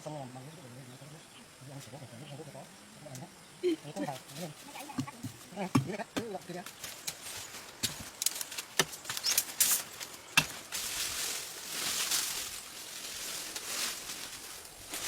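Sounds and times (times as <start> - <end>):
sharp wooden knocks: 5.0 - 6.4.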